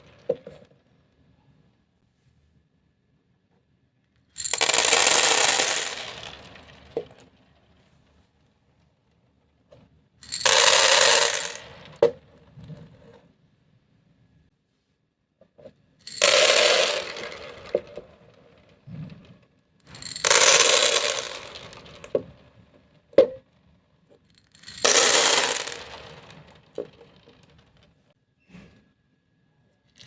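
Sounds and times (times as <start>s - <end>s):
beads clattering onto hard surface: 4.4s - 7.2s, 10.2s - 12.0s, 16.1s - 18.3s, 19.9s - 22.4s, 24.4s - 27.8s.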